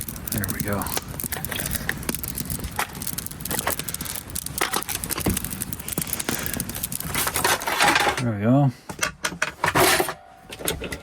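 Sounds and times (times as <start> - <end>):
campfire crackling and snapping: 0.0 - 8.3.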